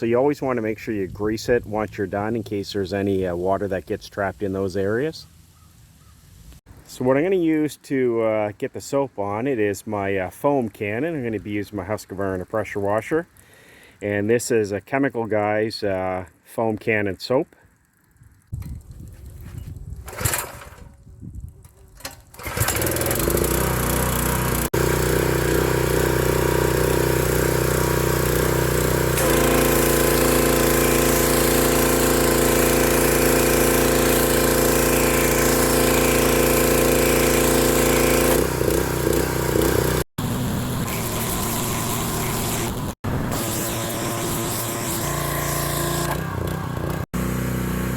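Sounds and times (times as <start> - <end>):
pressure washer running: 22.3 - 47.9.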